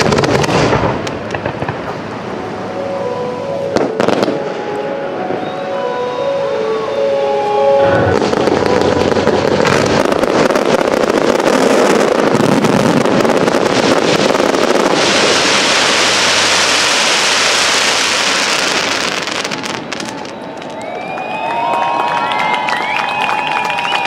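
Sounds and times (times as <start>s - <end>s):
fireworks bursting and crackling: 0.0s - 5.5s, 7.8s - 21.4s
hissy fireworks crackle: 0.0s - 5.5s, 7.9s - 21.2s.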